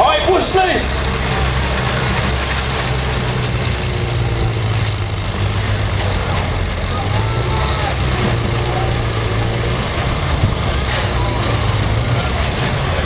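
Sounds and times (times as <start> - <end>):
car engines droning: 0.0 - 13.0.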